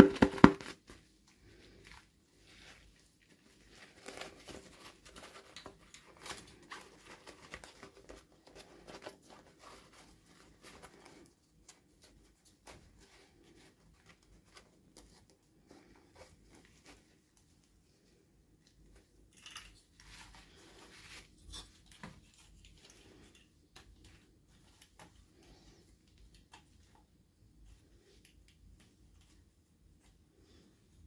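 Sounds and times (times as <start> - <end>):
toy packaging rustling and crinkling: 0.0 - 17.8.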